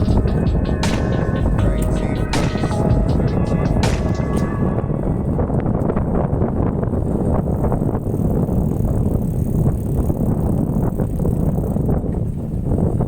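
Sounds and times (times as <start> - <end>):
wind on microphone: 0.0 - 13.0
bike tyre rumble on rough ground: 5.4 - 13.0
bike rattles and clicks: 6.8 - 13.0.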